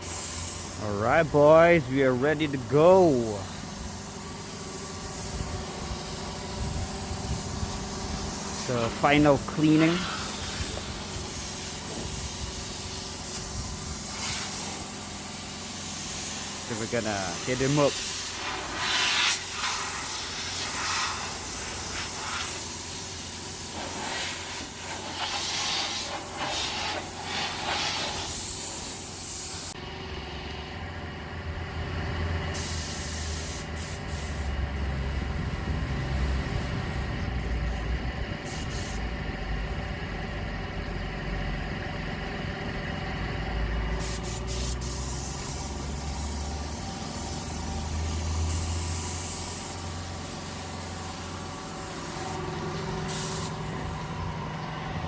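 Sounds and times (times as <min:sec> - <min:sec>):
paint spray gun hissing: 0:00.0 - 0:29.8, 0:32.6 - 0:35.2, 0:36.2 - 0:39.0, 0:44.0 - 0:54.2.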